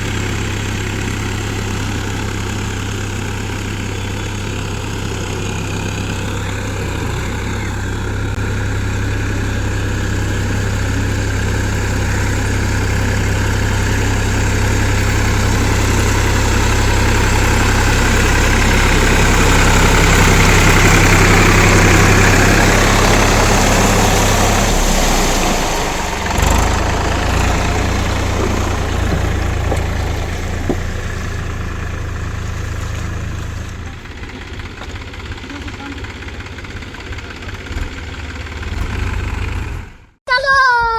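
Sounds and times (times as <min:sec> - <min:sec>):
tractor diesel engine running: 0:00.0 - 0:40.2.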